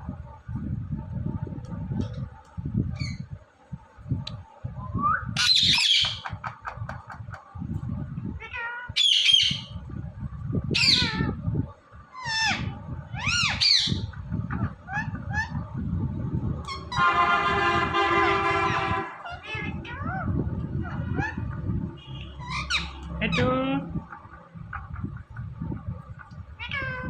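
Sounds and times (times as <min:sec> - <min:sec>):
parakeet squawking: 0:05.4 - 0:06.2, 0:09.0 - 0:09.8, 0:10.8 - 0:11.2, 0:12.2 - 0:15.5, 0:22.1 - 0:23.6
low rumble: 0:12.6 - 0:27.0.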